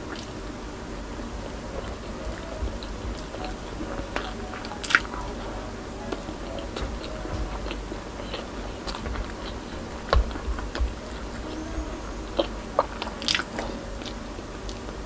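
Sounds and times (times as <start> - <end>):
close-miked chewing: 0.0 - 15.0.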